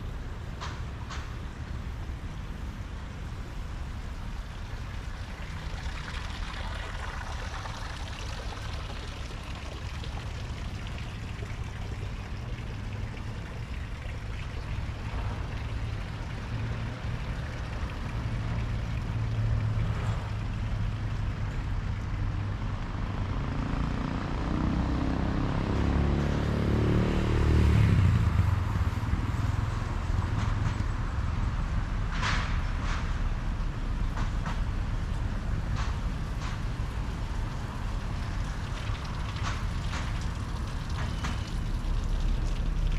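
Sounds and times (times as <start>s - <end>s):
traffic rumble: 0.0s - 42.9s
vehicle engine passing by: 22.2s - 31.6s.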